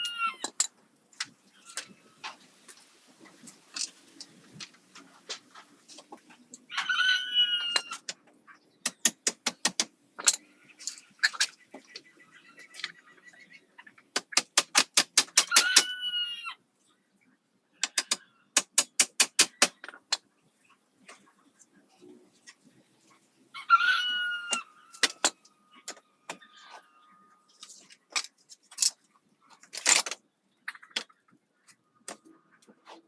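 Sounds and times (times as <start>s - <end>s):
sharp clicks: 8.9s - 9.9s, 14.2s - 15.9s
chicken squawking: 15.4s - 16.6s, 23.6s - 24.9s.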